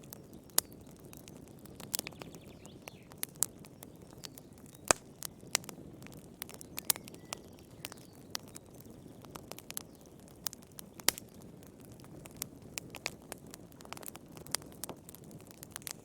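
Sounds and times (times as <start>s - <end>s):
wood fire crackling in fireplace: 0.0s - 16.0s.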